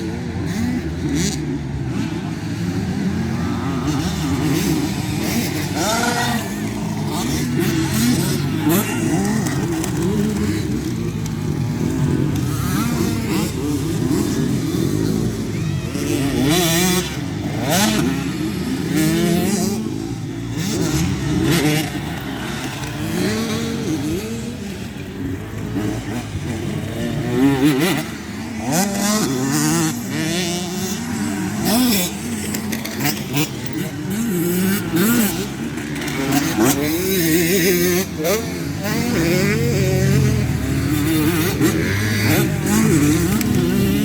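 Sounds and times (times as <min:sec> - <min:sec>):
motocross bike engines revving: 0:00.0 - 0:44.0.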